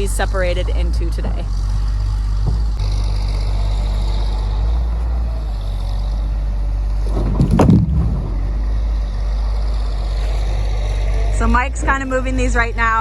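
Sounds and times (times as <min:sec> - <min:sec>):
excavator diesel engine running: 0:00.0 - 0:13.0
heavy knock and clatter: 0:01.1 - 0:03.3, 0:07.0 - 0:09.0.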